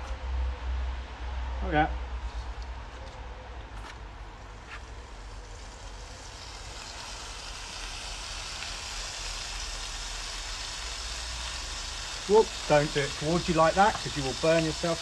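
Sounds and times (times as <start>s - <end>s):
squid sizzling in oil: 4.8s - 15.0s.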